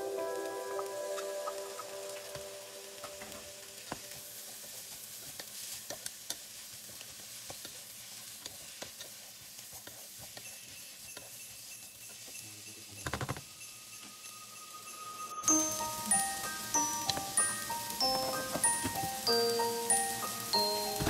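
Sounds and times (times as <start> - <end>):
vegetables sizzling in a pot: 0.0 - 21.0
spatula scraping and tapping pan: 3.1 - 12.4.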